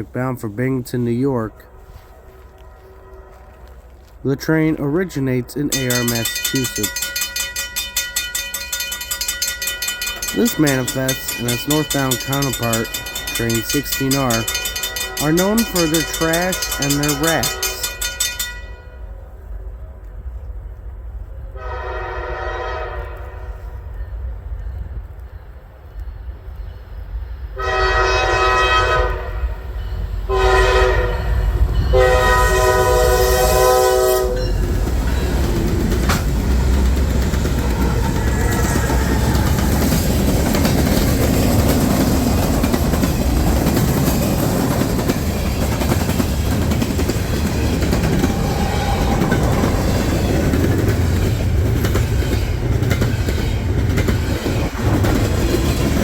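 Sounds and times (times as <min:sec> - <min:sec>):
locomotive horn blasts: 0:01.7 - 0:04.0, 0:21.6 - 0:23.7, 0:27.6 - 0:29.6, 0:30.3 - 0:34.5
locomotive engine rumble: 0:05.7 - 0:18.2, 0:31.2 - 0:56.0
train wheels clacking on rails: 0:05.7 - 0:18.7, 0:34.2 - 0:56.0.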